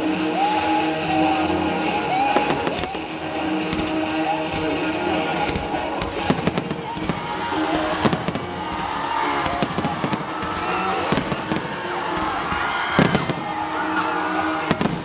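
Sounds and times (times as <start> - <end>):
pop music: 0.0 - 15.0
fireworks bursting and crackling: 0.1 - 15.0
sharp firework bangs: 2.3 - 4.7, 5.4 - 13.5, 14.7 - 15.0.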